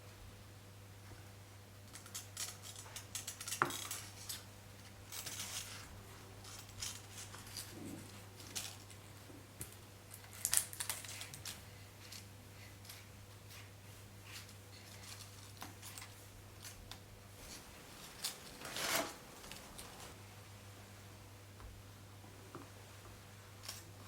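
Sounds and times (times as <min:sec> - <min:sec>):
small objects clicking and rustling: 0:01.9 - 0:13.1, 0:14.4 - 0:17.0.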